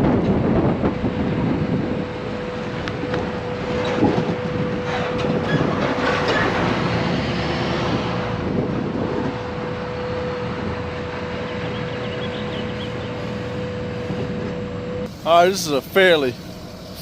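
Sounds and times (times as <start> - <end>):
trailer clanking and rattling: 0.0 - 17.0
truck road noise: 0.0 - 17.0
steady hum: 8.3 - 17.0.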